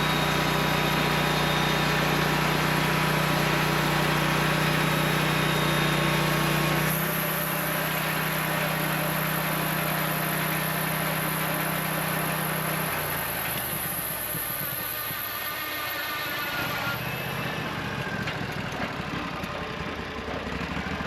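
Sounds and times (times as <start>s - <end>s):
sawmill engine running: 0.0s - 21.0s
high whine: 13.6s - 19.5s.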